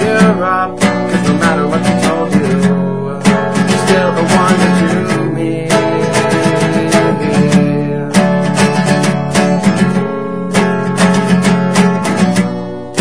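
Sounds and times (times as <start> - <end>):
person singing: 0.0 - 10.0
acoustic guitar strumming: 0.0 - 13.0.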